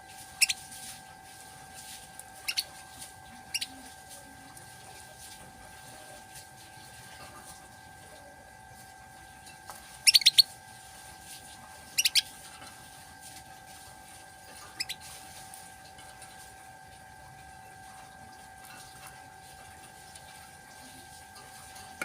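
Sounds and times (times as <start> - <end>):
faint hum: 0.0 - 22.0
canary chirping: 0.4 - 0.6, 2.4 - 2.7, 3.5 - 3.8, 10.0 - 10.6, 11.9 - 12.3, 14.7 - 15.1.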